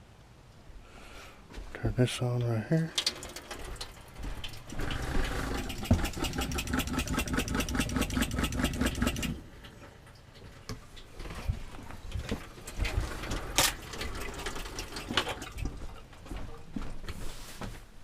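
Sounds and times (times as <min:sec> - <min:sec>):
water pump pulsing: 0:02.9 - 0:10.5, 0:12.1 - 0:16.0.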